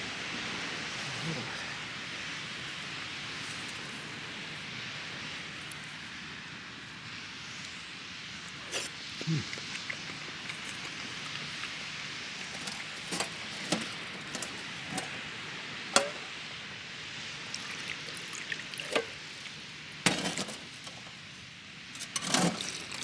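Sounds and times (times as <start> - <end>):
food sizzling on a grill: 10.0 - 23.0
utensils clinking: 12.4 - 15.2, 15.9 - 16.3, 18.3 - 21.3, 22.0 - 23.0.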